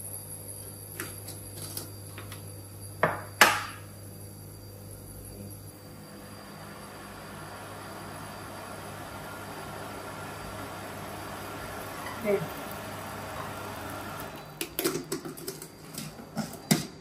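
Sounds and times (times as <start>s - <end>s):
sugar pouring hiss: 3.8s - 15.9s.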